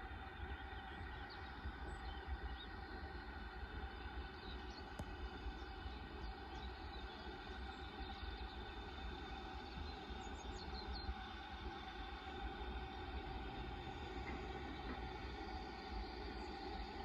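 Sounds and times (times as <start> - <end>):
locomotive humming: 5.2 - 17.0.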